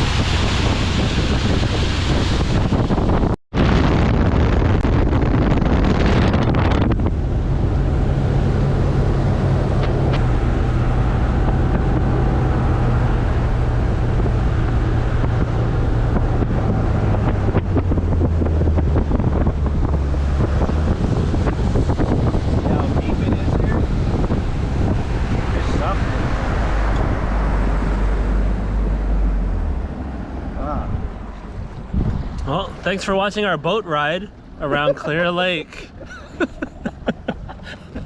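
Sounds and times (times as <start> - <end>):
rushing water: 0.0 - 3.4
wind noise on microphone: 0.0 - 33.0.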